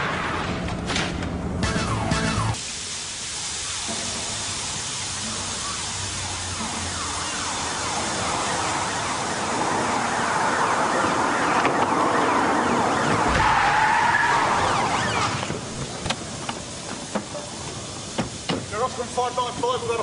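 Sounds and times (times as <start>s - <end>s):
car engines: 5.0s - 19.0s.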